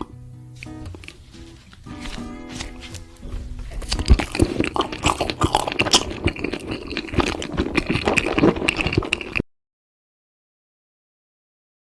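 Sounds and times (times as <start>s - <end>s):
chewing and crunching food: 0.0s - 9.4s.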